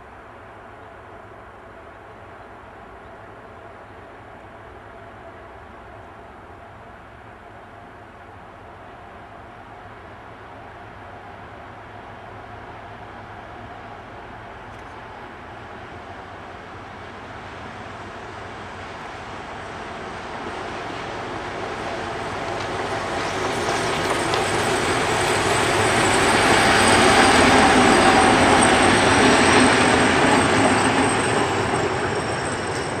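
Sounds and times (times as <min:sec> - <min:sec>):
train wheels rumbling on rails: 0:09.0 - 0:33.0
high wheel squeal: 0:25.2 - 0:33.0.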